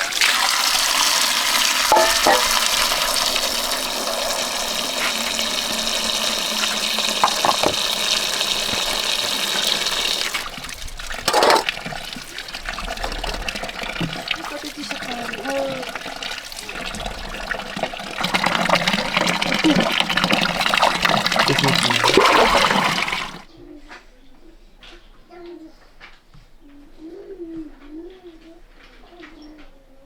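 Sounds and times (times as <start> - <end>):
water pouring: 0.0 - 23.5.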